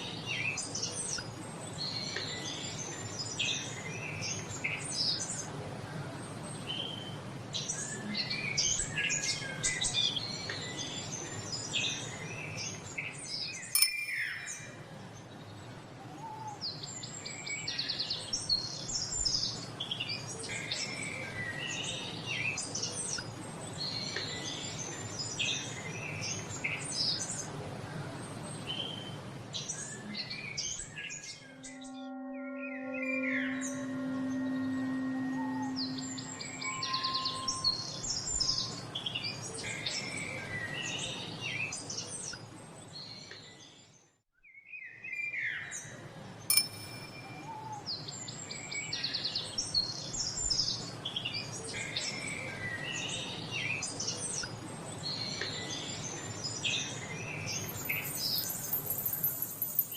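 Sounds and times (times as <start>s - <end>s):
songbirds chirping and singing: 52.1s - 59.9s.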